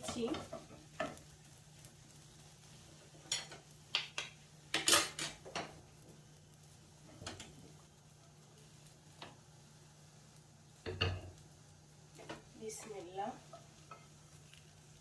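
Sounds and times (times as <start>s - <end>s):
metal utensil scraping a pan: 3.0s - 3.7s.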